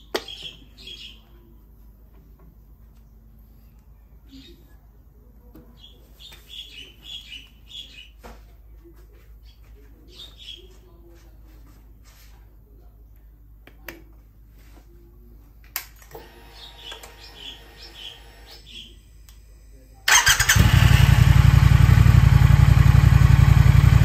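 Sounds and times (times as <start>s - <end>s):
small birds chirping: 0.0s - 1.8s, 2.9s - 8.3s, 9.3s - 11.2s, 16.4s - 19.2s.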